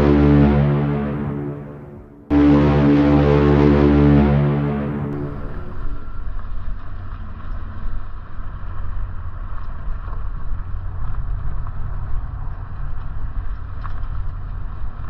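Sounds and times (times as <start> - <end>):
road noise: 0.0 - 6.4.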